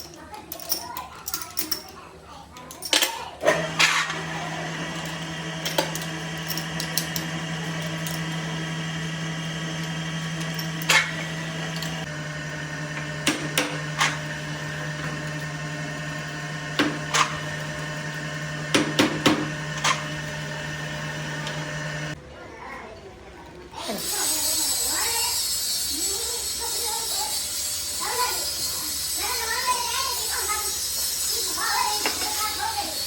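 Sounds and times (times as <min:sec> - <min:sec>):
electric motor humming: 0:03.5 - 0:22.2, 0:23.8 - 0:33.0.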